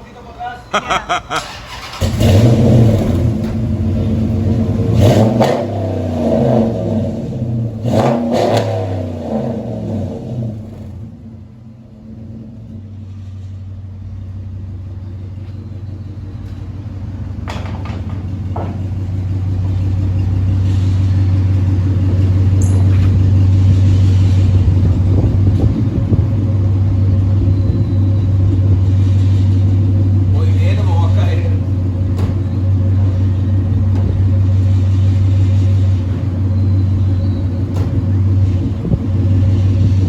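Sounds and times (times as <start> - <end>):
deep engine exhaust rumble: 0.8 - 40.0.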